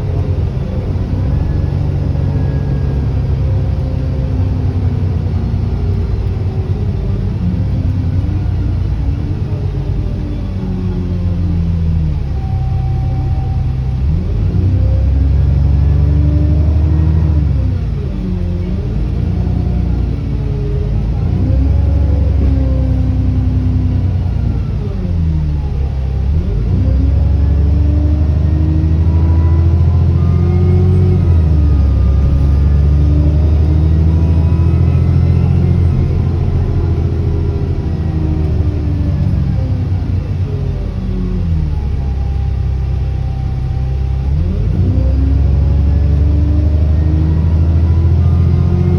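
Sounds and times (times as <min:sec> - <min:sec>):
bus engine pulling under load: 0:00.0 - 0:48.9
turbo whine: 0:00.0 - 0:48.9.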